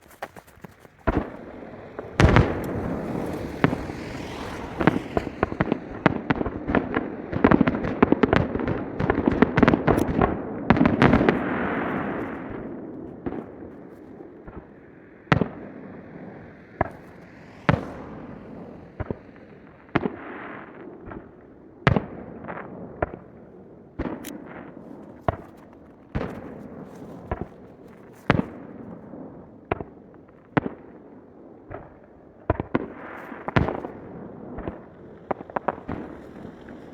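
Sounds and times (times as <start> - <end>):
continuous rumble: 0.0 - 8.0, 9.8 - 20.2, 33.3 - 36.9
fireworks bangs: 0.1 - 36.9.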